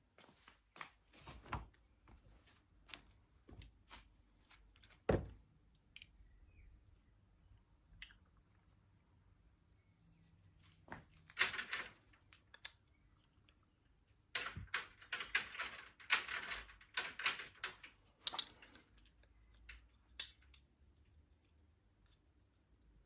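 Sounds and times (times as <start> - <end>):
metal tools clinking on workbench: 14.4 - 19.9.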